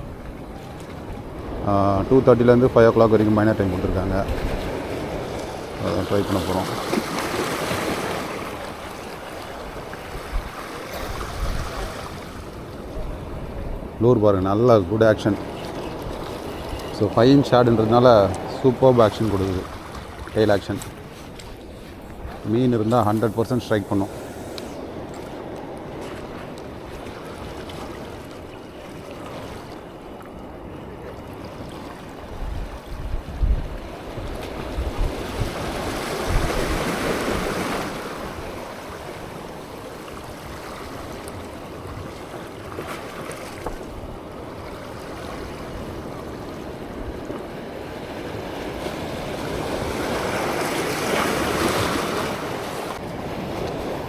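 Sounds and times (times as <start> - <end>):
wind buffeting microphone: 0.0 - 29.2, 29.8 - 42.9
waves splashing at shore: 0.0 - 54.0.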